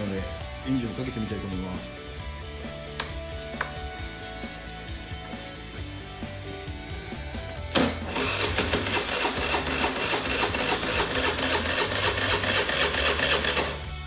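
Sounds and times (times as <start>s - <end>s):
starter switch click: 7.7s - 8.2s
scooter engine cranking: 7.7s - 13.9s.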